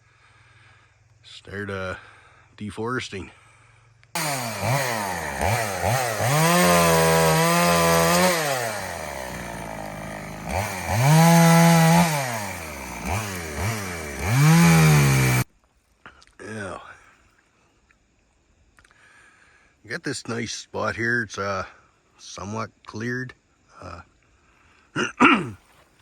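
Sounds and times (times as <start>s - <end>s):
chainsaw engine revving: 4.2s - 15.5s.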